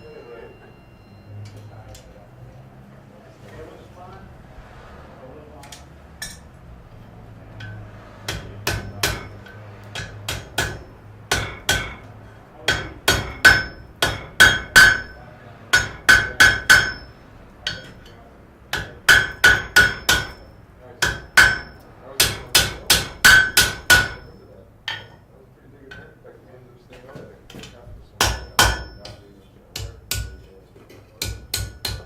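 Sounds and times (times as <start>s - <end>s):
hammer striking metal on anvil: 5.6s - 6.6s, 7.5s - 25.3s, 27.6s - 30.6s, 31.2s - 32.0s.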